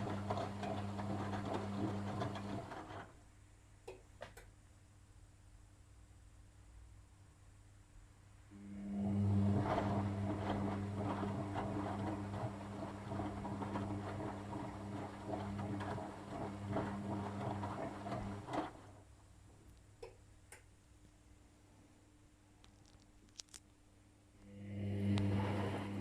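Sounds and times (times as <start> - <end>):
washing machine drain pump humming: 0.0 - 3.2, 8.6 - 19.2, 24.4 - 26.0.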